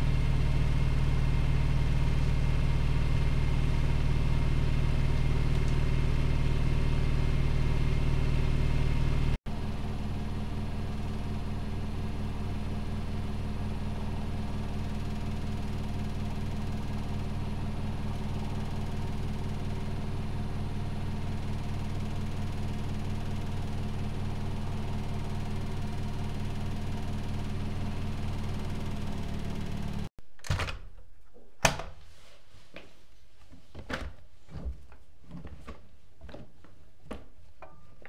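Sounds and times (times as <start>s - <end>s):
washing machine spinning: 0.0s - 30.1s.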